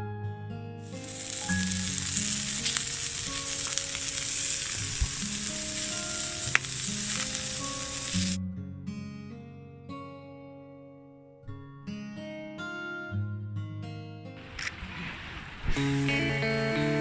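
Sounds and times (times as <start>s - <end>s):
soft guitar music: 0.0s - 17.0s
deep-frying sizzle with pops: 0.8s - 8.4s.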